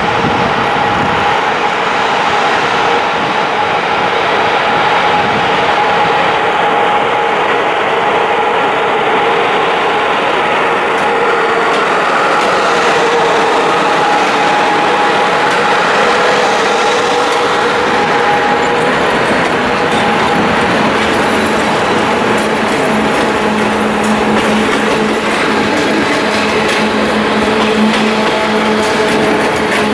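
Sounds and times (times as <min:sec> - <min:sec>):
steady tones: 0:00.0 - 0:29.9
train rolling noise: 0:00.0 - 0:29.9.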